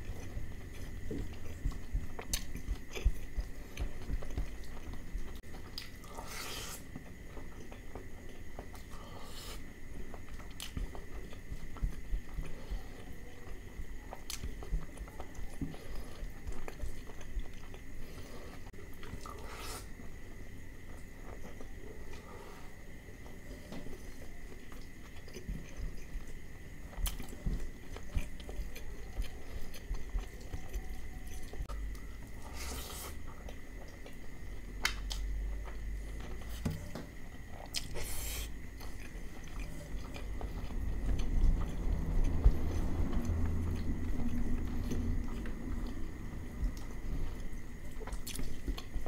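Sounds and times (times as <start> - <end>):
close chewing: 0.0 - 20.2, 20.8 - 49.0.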